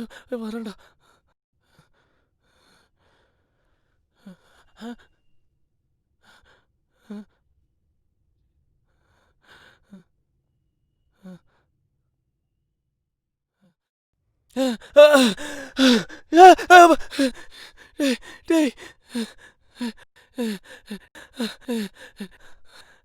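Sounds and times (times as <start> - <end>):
person breathing heavily: 14.6 - 22.9.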